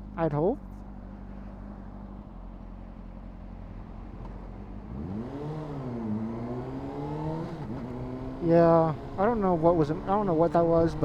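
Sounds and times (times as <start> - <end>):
motorcycle engine revving: 4.8 - 11.0.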